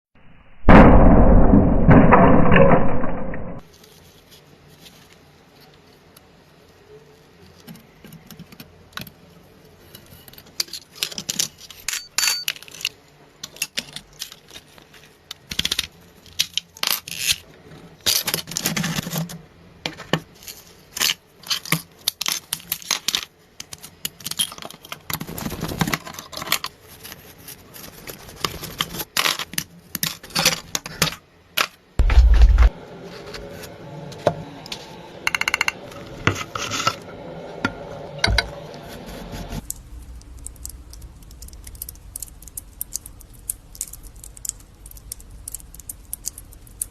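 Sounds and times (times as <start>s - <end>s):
clicks and scrapes of small parts: 9.8s - 33.4s, 38.8s - 46.9s
heavy low thump: 32.0s - 32.8s.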